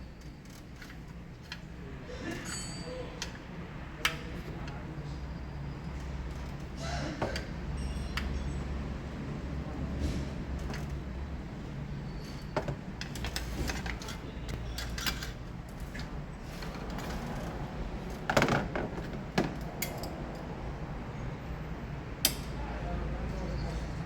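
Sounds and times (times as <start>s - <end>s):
metal tools clinking: 0.0s - 3.5s, 7.4s - 8.8s, 12.1s - 16.1s.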